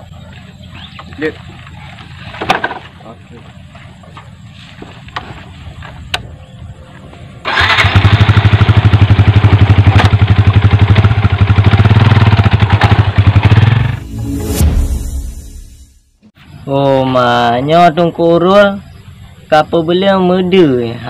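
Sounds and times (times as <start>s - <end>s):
motorcycle engine starting and running: 7.4s - 14.6s.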